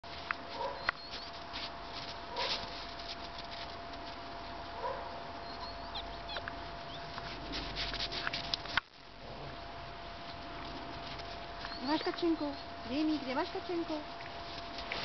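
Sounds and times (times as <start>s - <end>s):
faint steady hum: 0.1s - 15.0s
puppies whimpering and squeaking: 0.6s - 1.4s, 5.4s - 7.3s, 11.6s - 13.0s
light clicks and patter: 6.2s - 9.0s.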